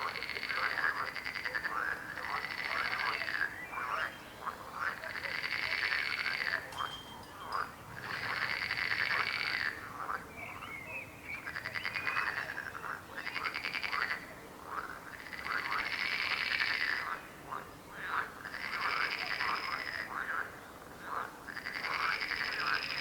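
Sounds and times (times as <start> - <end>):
frogs croaking trills: 0.0 - 23.0
rising frog calls: 4.8 - 17.2.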